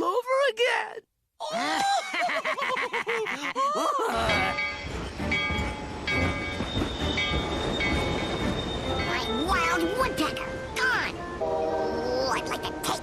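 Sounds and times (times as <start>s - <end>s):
cartoon train on rails: 4.1s - 13.0s
train whistle tones: 6.6s - 9.4s.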